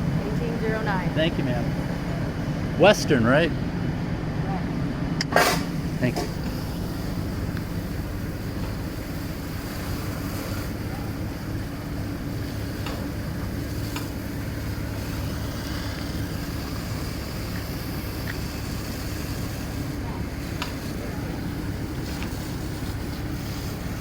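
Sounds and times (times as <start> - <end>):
large vehicle engine humming: 0.0 - 24.0.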